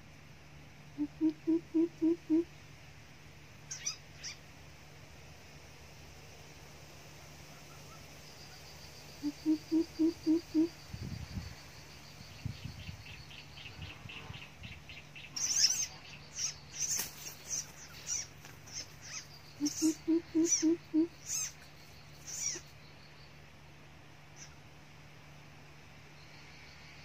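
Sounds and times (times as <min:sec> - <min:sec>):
deep hooting bird call: 0:00.9 - 0:02.5, 0:09.2 - 0:10.8, 0:19.1 - 0:21.6
high-pitched bird chirps: 0:03.7 - 0:04.4, 0:18.0 - 0:21.6.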